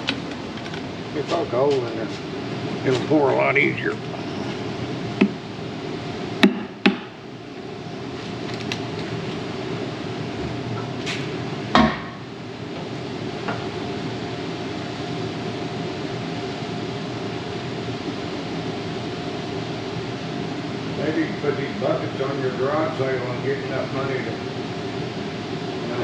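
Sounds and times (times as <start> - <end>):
steady hum: 0.0 - 26.0
sharp knocks: 6.4 - 7.1, 11.8 - 12.2.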